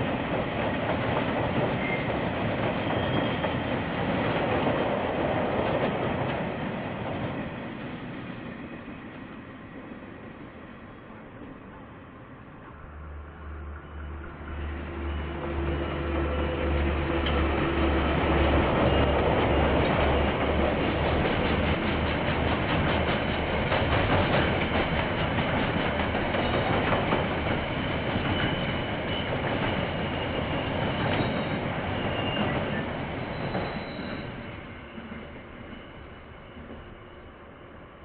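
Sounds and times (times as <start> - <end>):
diesel locomotive hum: 0.0 - 38.0
high wheel squeals: 2.8 - 3.7, 28.2 - 37.4.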